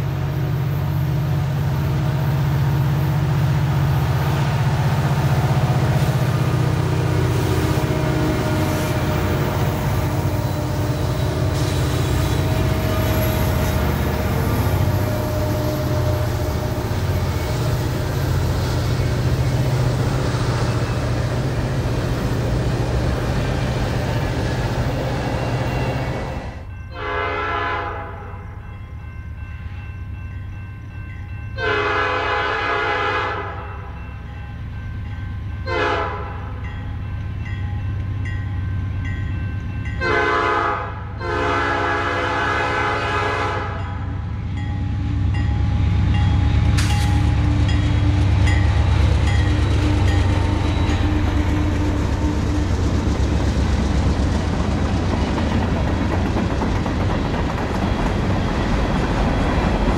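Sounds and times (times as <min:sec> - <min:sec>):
train wheels rumbling on rail: 0:00.0 - 0:59.9
locomotive air horn blasts: 0:07.0 - 0:17.6, 0:26.9 - 0:28.4, 0:31.6 - 0:33.8, 0:35.6 - 0:36.6, 0:40.0 - 0:44.0.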